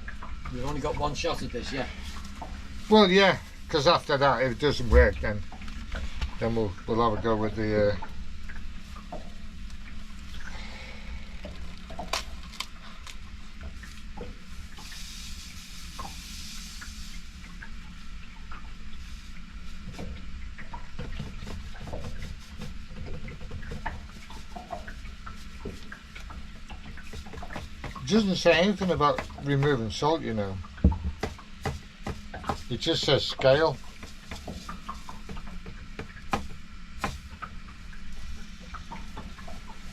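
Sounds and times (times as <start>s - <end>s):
steady low hum: 0.0s - 39.9s
hiss: 14.7s - 17.3s.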